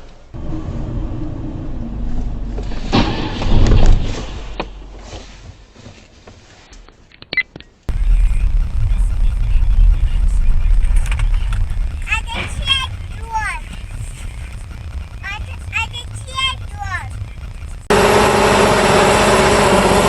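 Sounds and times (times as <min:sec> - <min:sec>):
heavy vehicles rumbling: 0:00.3 - 0:05.1, 0:07.9 - 0:20.0
loud crashing impact: 0:07.9 - 0:12.9.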